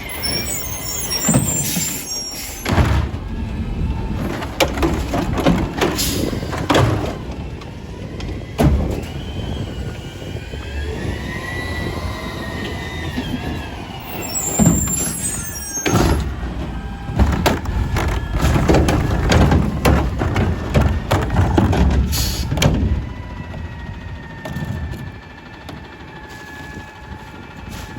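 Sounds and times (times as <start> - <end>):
truck low rumble: 0.0 - 27.9
knocks and clatter: 1.1 - 9.2, 15.8 - 23.1.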